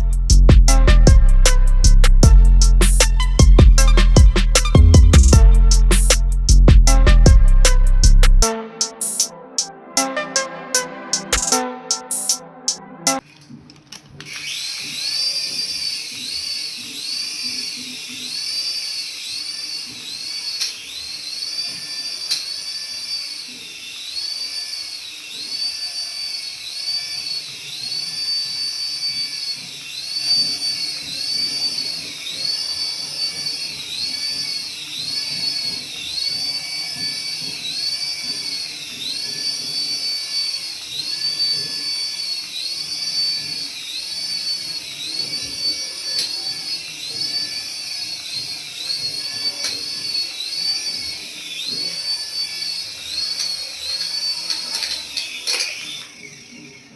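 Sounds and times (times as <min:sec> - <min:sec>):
toy electric motor whining: 0:00.0 - 0:56.9.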